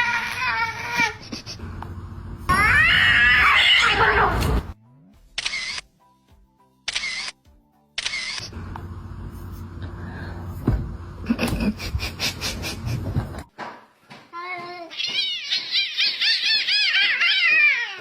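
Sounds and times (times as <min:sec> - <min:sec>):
background noise: 0:13.0 - 0:18.0
cat meowing: 0:14.9 - 0:18.0.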